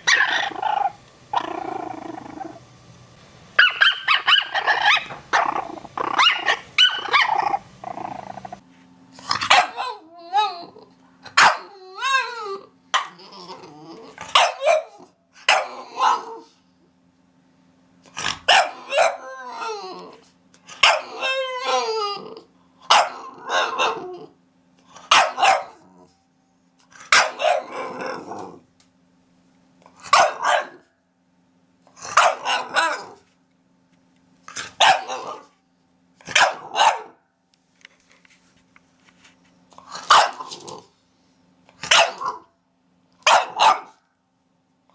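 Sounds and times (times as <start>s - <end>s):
puppies barking and yelping: 0.0s - 1.0s, 3.6s - 8.6s.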